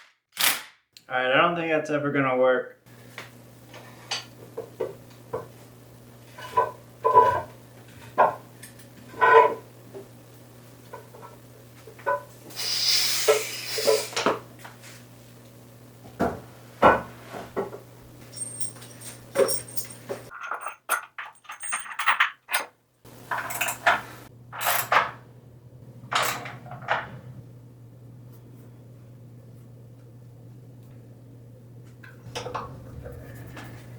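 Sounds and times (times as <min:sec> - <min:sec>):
metal parts and tools clinking: 0:18.3 - 0:22.7, 0:23.3 - 0:24.0
steady low hum: 0:23.1 - 0:33.9.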